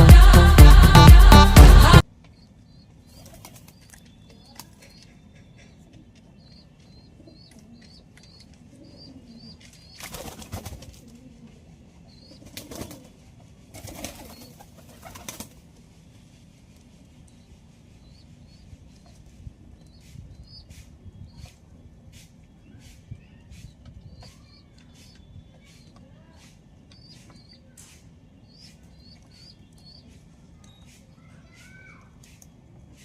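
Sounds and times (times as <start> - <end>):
dance-pop music: 0.0 - 2.0
pigeons flapping wings: 3.2 - 3.9, 10.0 - 11.2, 12.4 - 15.6.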